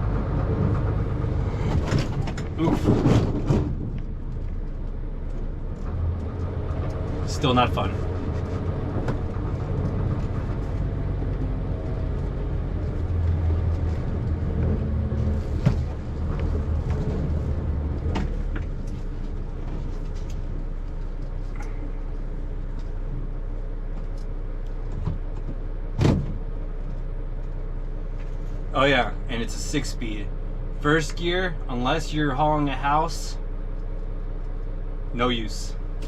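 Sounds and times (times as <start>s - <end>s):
truck diesel engine rumble: 0.0s - 36.0s
knocks and rattles: 0.4s - 4.8s.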